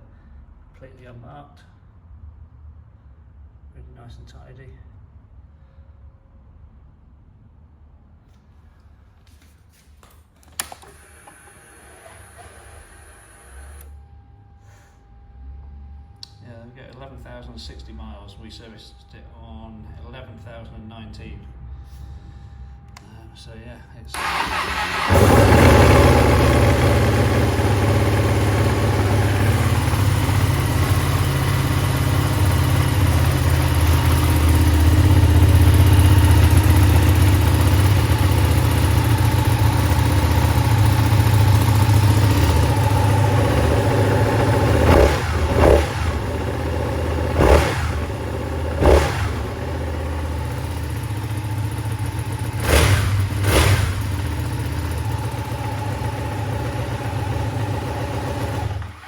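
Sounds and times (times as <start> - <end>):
motorcycle engine starting and idling: 10.4 - 13.9, 24.1 - 59.0
engine throttle blips: 10.6 - 14.2, 24.1 - 59.0.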